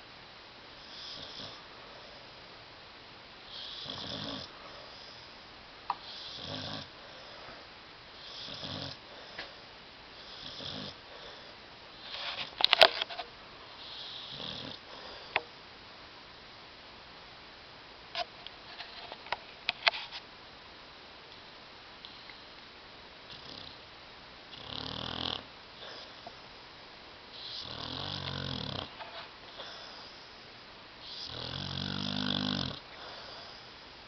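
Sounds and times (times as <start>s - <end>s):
dog snoring: 0.8s - 1.6s, 3.5s - 5.3s, 6.0s - 7.3s, 8.2s - 9.4s, 10.2s - 12.4s, 13.8s - 15.1s, 23.3s - 23.8s, 24.5s - 26.3s, 27.3s - 30.3s, 31.0s - 33.7s.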